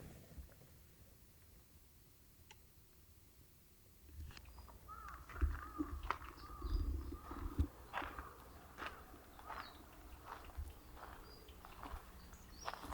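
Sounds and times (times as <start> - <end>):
low thumps and clicks: 4.2 - 7.7
bird calling: 4.4 - 12.9.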